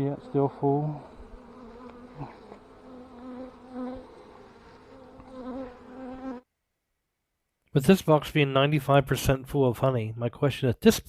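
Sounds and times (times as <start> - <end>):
honeybees buzzing: 0.0 - 6.5.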